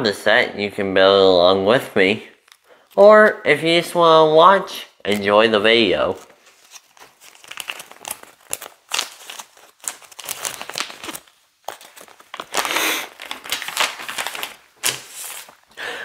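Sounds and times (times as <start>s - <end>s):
plastic bag crinkling: 2.4s - 3.1s, 5.0s - 15.8s.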